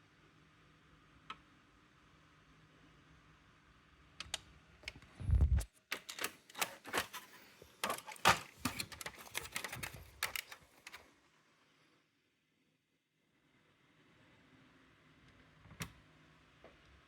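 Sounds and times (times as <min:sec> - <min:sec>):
electronic typewriter clicking: 0:05.9 - 0:07.1, 0:07.8 - 0:11.0.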